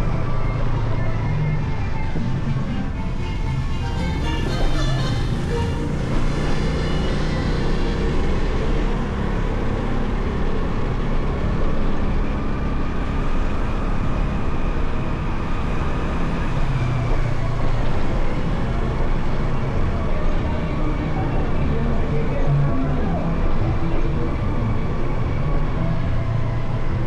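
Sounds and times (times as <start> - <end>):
wind and road noise: 0.0 - 27.0.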